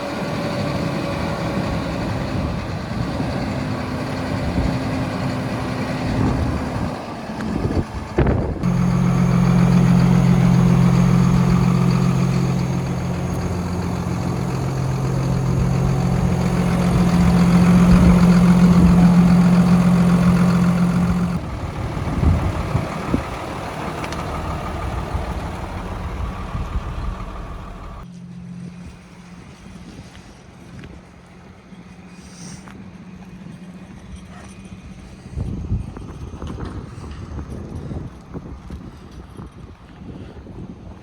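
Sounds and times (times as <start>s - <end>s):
diesel engine idling: 0.0s - 28.1s.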